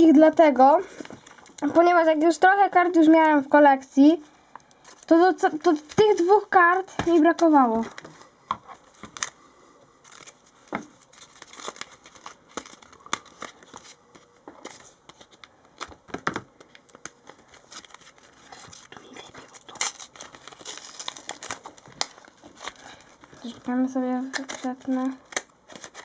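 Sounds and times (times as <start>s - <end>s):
wrapper crinkling: 4.6s - 9.4s, 10.0s - 16.0s, 16.6s - 26.0s
cards handled with clicks and taps: 10.1s - 23.6s, 24.2s - 26.0s.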